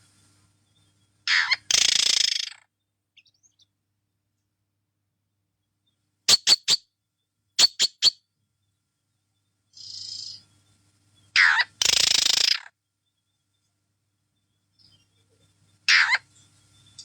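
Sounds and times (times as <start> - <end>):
bird screeching: 1.3 - 2.6, 6.3 - 6.8, 7.6 - 8.2, 11.4 - 12.6, 15.9 - 16.2
pet bird squeaking: 6.3 - 6.8, 7.6 - 8.2.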